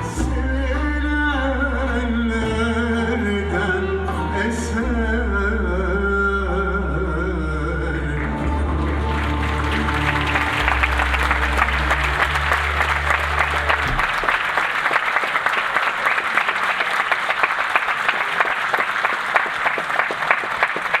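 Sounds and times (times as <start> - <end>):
held low music note: 0.0 - 14.9
audience applauding: 8.1 - 21.0.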